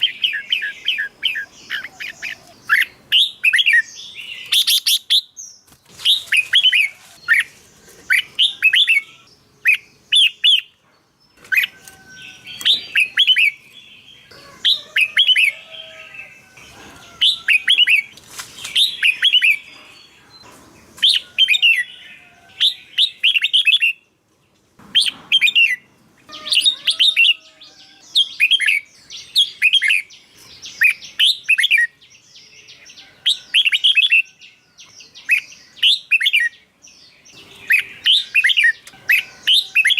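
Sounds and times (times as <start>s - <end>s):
bird whistling song: 11.4s - 13.7s, 22.6s - 24.0s, 24.9s - 30.1s, 37.4s - 39.9s.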